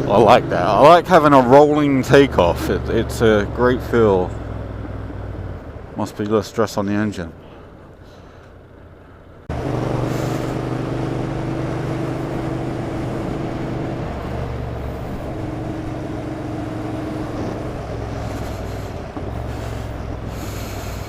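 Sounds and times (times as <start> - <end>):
motorcycle engine running: 8.2 - 21.0.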